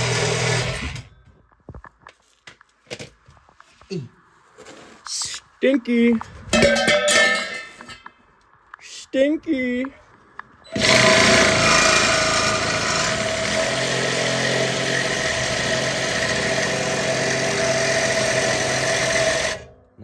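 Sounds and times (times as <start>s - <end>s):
reciprocating saw cutting metal pipe: 0.0s - 1.1s, 10.7s - 19.7s.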